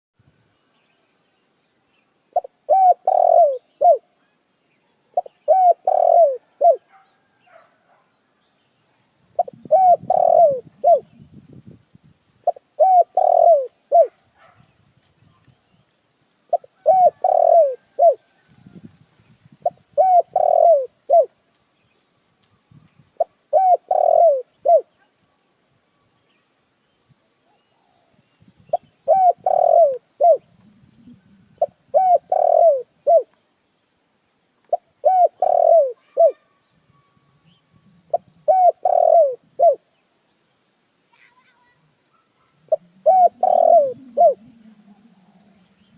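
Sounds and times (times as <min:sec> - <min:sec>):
dove cooing: 0:02.3 - 0:04.2, 0:05.2 - 0:07.4, 0:09.3 - 0:11.2, 0:12.4 - 0:14.6, 0:16.5 - 0:18.8, 0:19.6 - 0:21.4, 0:23.2 - 0:25.0, 0:27.5 - 0:33.3, 0:34.7 - 0:36.6, 0:37.4 - 0:39.9, 0:41.6 - 0:45.9.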